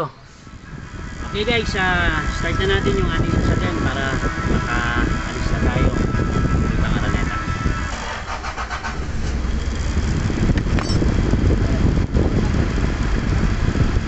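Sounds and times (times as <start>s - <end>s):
car engine idling: 0.0s - 14.0s
engine starter cranking: 7.7s - 11.1s.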